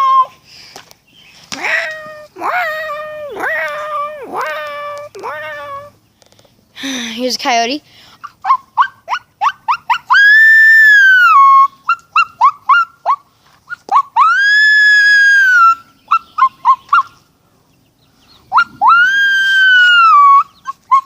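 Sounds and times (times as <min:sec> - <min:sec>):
person howling like a coyote: 0:00.0 - 0:00.3, 0:01.6 - 0:05.9, 0:08.4 - 0:13.2, 0:13.9 - 0:17.0, 0:18.5 - 0:21.0
person yipping: 0:01.6 - 0:05.9, 0:08.2 - 0:17.1, 0:18.5 - 0:21.0.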